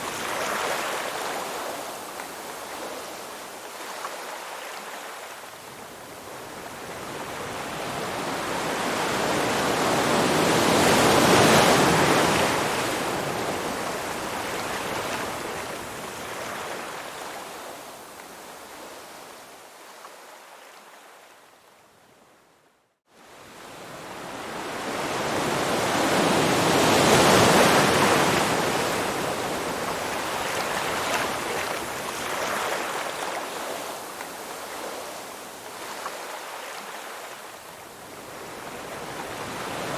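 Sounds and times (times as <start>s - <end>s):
rushing water: 24.5s - 39.9s.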